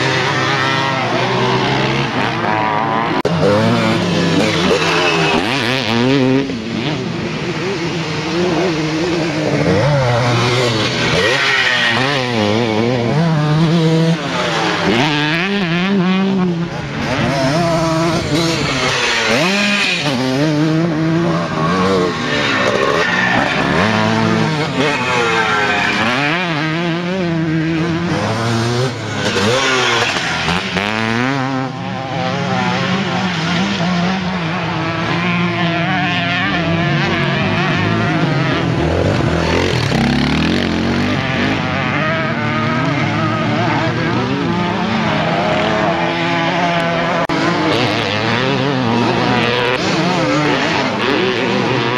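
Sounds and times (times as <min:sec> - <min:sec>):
motocross bike engines racing: 0:00.0 - 0:51.9.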